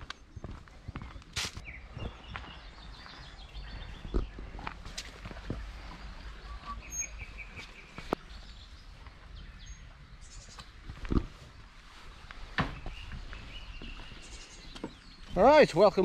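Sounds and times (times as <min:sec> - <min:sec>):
small birds chirping: 0:00.0 - 0:16.0
sharp knocks and thuds: 0:12.5 - 0:13.1.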